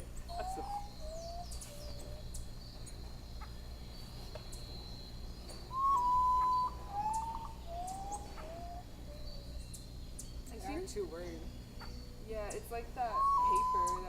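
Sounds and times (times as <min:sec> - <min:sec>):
bird whistling: 0:00.2 - 0:02.5, 0:04.5 - 0:10.7, 0:11.8 - 0:14.0.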